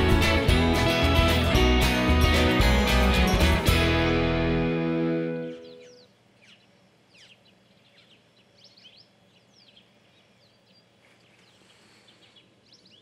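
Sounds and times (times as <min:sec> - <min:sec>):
birds chirping and whistling: 0:05.3 - 0:13.0.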